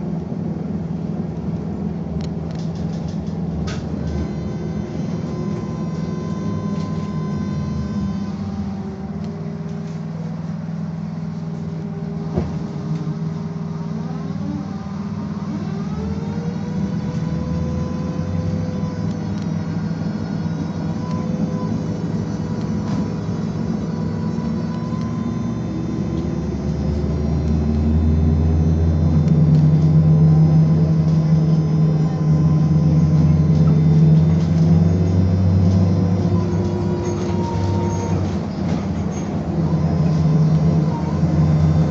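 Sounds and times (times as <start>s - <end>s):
low running rumble: 0.0s - 41.9s
electric drive whine: 2.2s - 41.9s.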